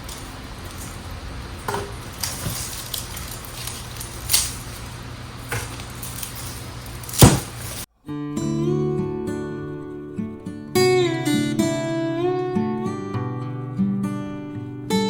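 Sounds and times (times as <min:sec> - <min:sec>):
garlic stalks snipped: 0:01.8 - 0:07.8.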